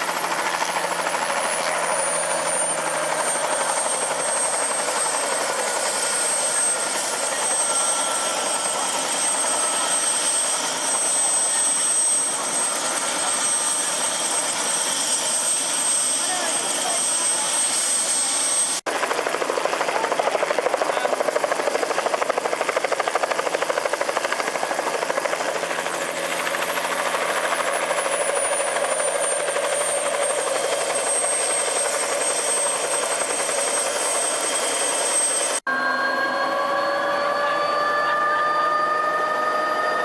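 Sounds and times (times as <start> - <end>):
helicopter rotor beat: 0.0 - 40.0
high turbine whine: 29.6 - 40.0
engine with rising tones: 35.7 - 40.0.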